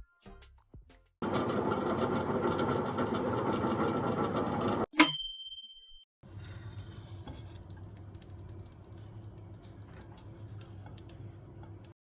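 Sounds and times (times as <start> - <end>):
microwave oven bell ringing: 1.2 - 6.1.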